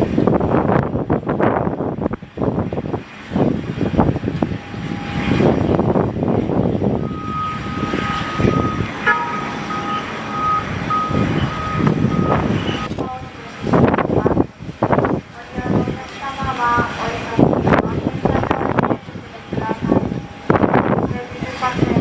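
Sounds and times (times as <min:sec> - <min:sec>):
gusty wind buffeting microphone: 0:00.0 - 0:22.0
vehicle rumble: 0:00.0 - 0:22.0
short warning beeps: 0:07.0 - 0:13.0
steady high tone: 0:07.0 - 0:21.4.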